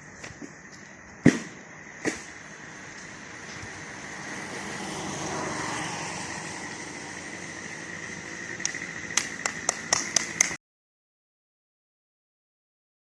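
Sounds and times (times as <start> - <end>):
road vehicle passing by: 0.0 - 10.6.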